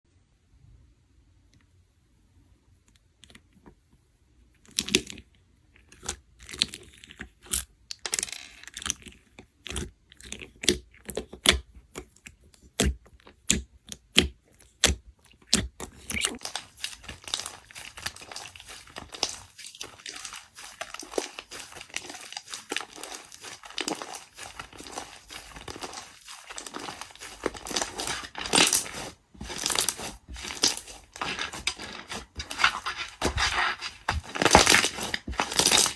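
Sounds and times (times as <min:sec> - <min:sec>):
crinkling and tearing: 0:15.3 - 0:35.9.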